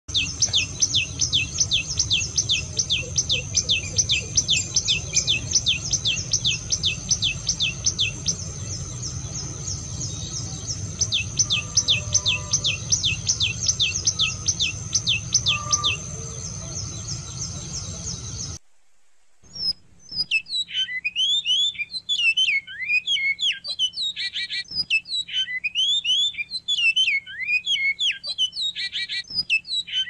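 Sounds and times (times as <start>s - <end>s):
bird singing sharp notes: 0.1s - 18.6s
high-pitched hum: 0.1s - 18.6s.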